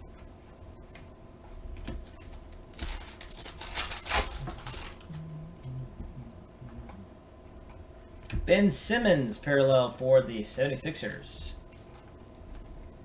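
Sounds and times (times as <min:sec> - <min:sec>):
trading cards flicking and rustling: 0:01.8 - 0:05.3.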